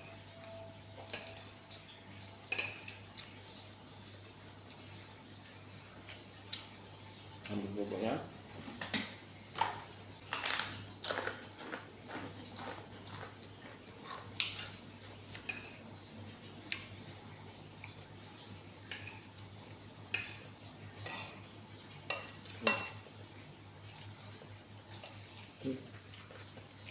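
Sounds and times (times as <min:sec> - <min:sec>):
metal utensil clinking on dishware: 0:00.0 - 0:01.5, 0:02.5 - 0:03.0, 0:22.1 - 0:23.0.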